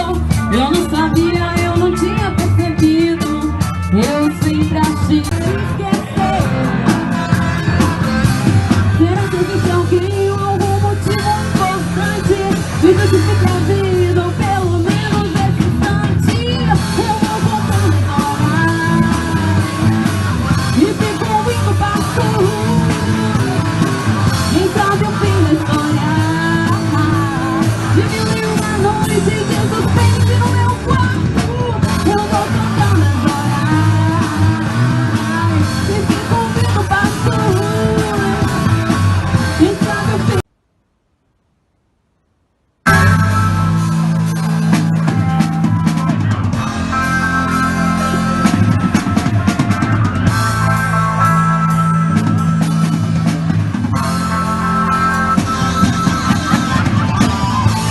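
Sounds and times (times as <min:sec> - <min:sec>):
person singing: 0:00.0 - 0:08.2, 0:08.9 - 0:20.1, 0:20.7 - 0:40.4
electric guitars: 0:00.0 - 0:40.4, 0:42.9 - 0:57.9
bass guitar: 0:00.0 - 0:40.5, 0:42.9 - 0:57.9
drums: 0:00.0 - 0:40.8, 0:42.8 - 0:57.9.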